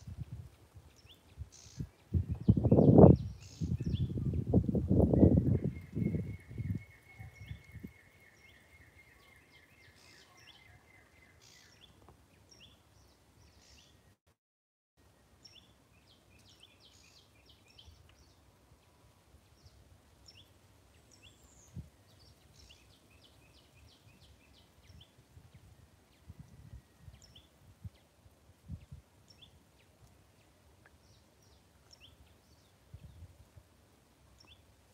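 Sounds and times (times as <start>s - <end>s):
faint bird chirps: 5.4s - 12.8s.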